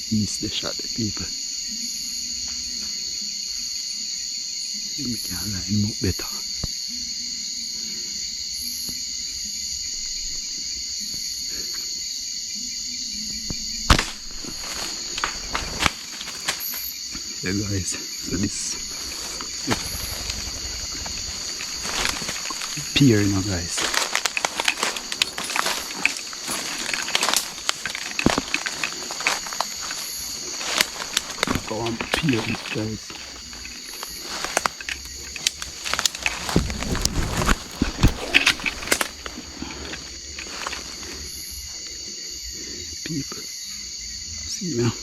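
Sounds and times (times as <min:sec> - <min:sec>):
crickets chirping: 0:00.0 - 0:45.0
night insects chorus: 0:00.0 - 0:45.0
dry brush crackling underfoot: 0:13.5 - 0:42.0.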